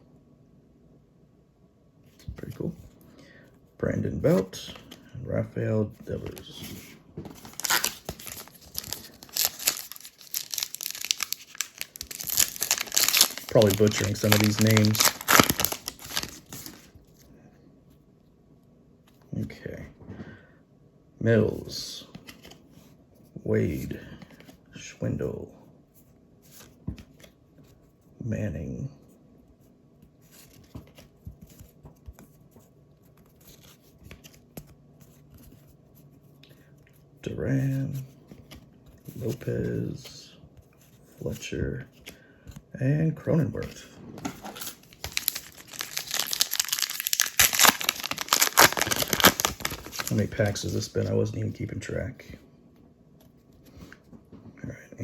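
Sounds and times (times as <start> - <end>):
card pack wrapper tearing: 7.4 - 16.9, 44.3 - 50.8.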